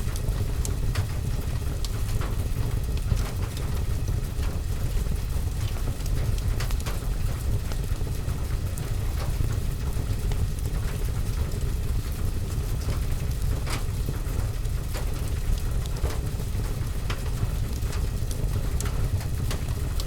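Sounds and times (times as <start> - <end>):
rain on window and roof: 0.0 - 20.0
wood fire crackling: 9.8 - 20.0.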